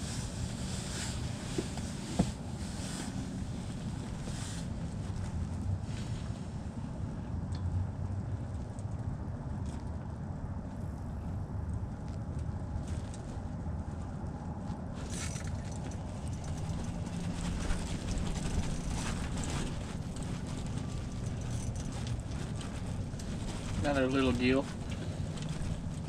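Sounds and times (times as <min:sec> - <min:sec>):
light clicks and crackles: 0:07.5 - 0:26.0.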